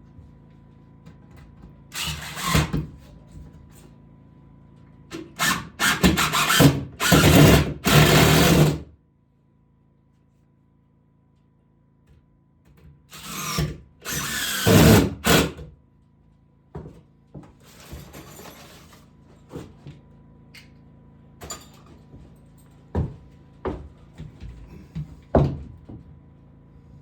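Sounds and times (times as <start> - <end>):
power drill running: 1.9 - 2.8, 5.2 - 8.8, 13.1 - 15.6.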